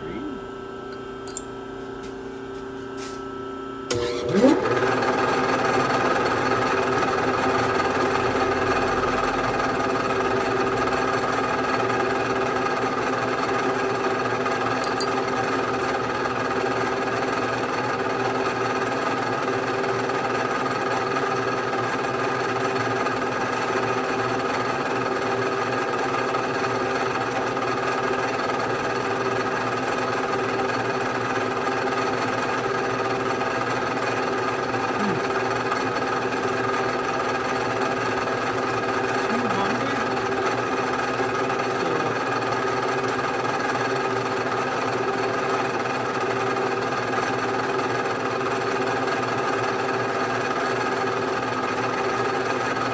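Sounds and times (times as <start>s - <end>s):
milling machine whine: 0.0s - 52.9s.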